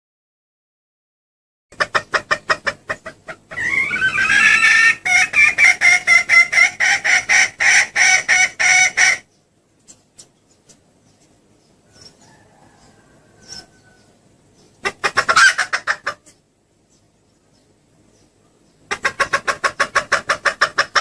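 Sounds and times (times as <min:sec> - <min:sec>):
hen clucking: 0:01.7 - 0:21.0
hen rising call: 0:03.5 - 0:09.2.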